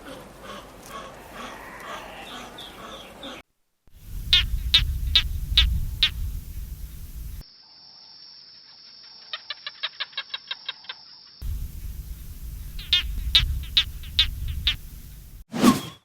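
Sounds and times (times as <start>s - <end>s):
low rumble: 4.0s - 7.4s, 11.4s - 15.5s
steady high hum: 4.0s - 7.4s, 11.4s - 15.5s.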